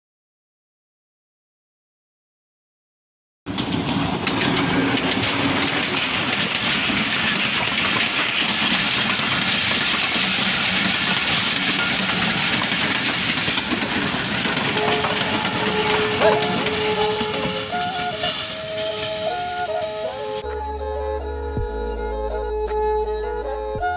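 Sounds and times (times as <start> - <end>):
train wheels rushing on rails: 3.5 - 20.4
coaches rattling: 3.6 - 20.0.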